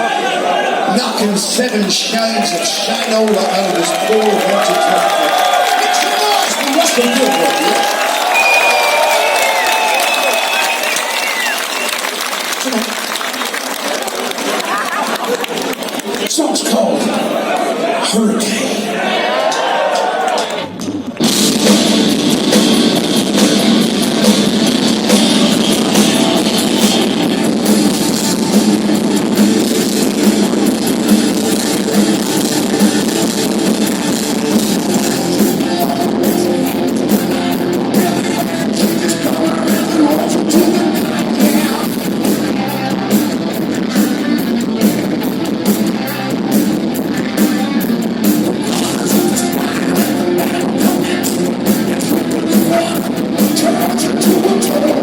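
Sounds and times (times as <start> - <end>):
rock band playing live: 20.7 - 55.0
drum hits: 20.8 - 42.5.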